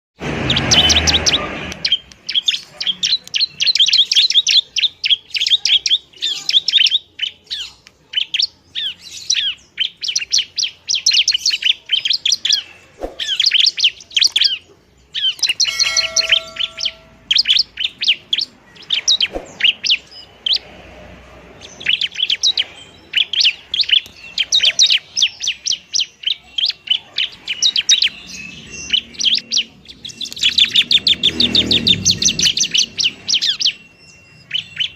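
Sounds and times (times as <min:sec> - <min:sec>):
bird singing rapid high chirps: 0:00.2 - 0:34.9.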